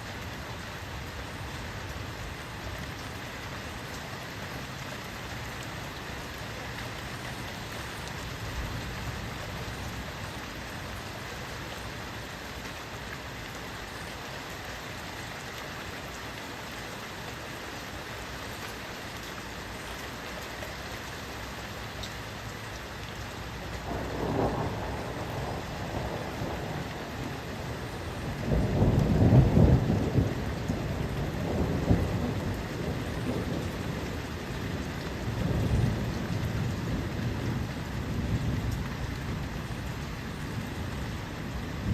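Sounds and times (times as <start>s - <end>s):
steady rain falling: 0.0s - 41.9s
low rumble of thunder: 23.7s - 41.9s.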